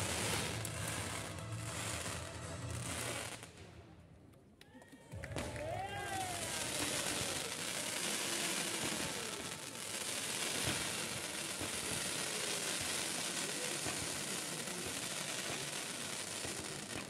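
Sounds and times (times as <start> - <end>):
fireworks hissing and crackling: 0.0 - 3.8, 5.2 - 17.0
firework pops: 10.4 - 17.0.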